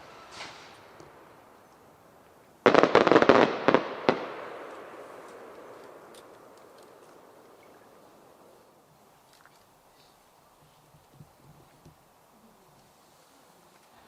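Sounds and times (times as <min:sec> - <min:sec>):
firework echo: 0:00.0 - 0:08.5
firework cracks and pops: 0:02.2 - 0:07.5.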